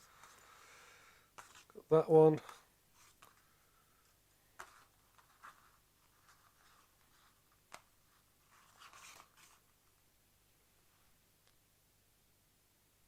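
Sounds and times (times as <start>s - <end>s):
cables rustling: 1.3s - 10.0s.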